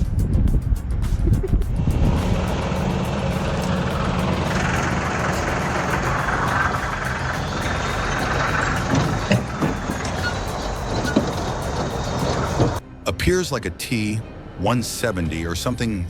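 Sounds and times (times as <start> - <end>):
tracked vehicle engine running: 1.3 - 12.8
hissing grinding noise: 1.7 - 12.8.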